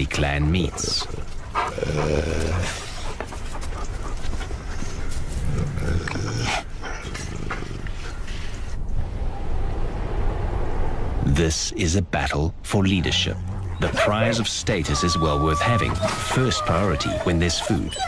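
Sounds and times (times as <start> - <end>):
wolves growling: 0.0 - 8.8, 12.9 - 18.0.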